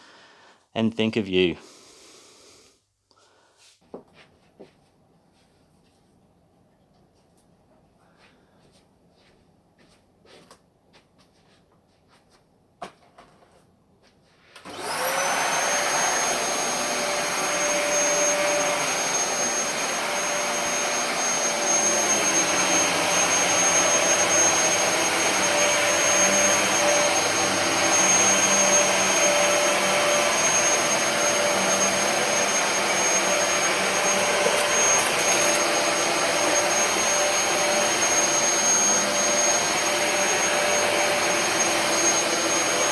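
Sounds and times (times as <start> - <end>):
vacuum cleaner motor whining: 14.6 - 42.9.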